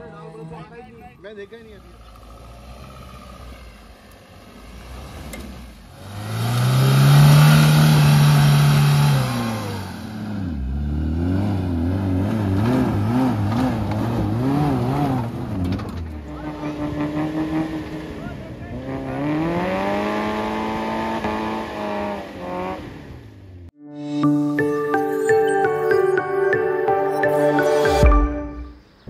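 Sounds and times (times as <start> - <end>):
engine revving: 1.8 - 23.7.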